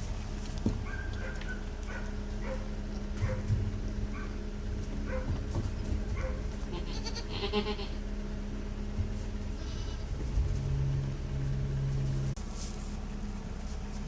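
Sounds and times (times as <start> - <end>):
low steady hum: 0.0 - 14.0
baby goats bleating: 6.5 - 8.0, 9.5 - 10.2.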